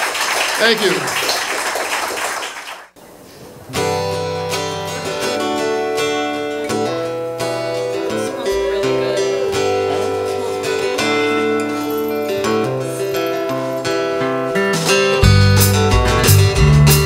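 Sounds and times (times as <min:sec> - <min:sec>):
acoustic folk-rock band playing: 0:03.6 - 0:17.0.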